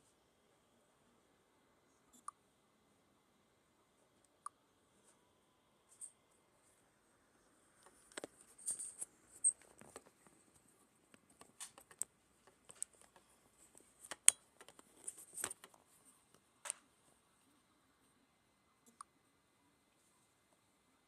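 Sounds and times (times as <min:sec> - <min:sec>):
light clicks and scrapes: 0:07.8 - 0:16.8.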